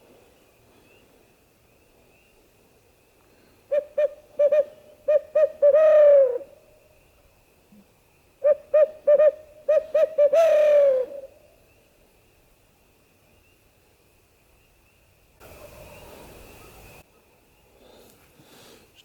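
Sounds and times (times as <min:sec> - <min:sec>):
owl call hoots: 0:03.7 - 0:06.6, 0:08.4 - 0:11.4.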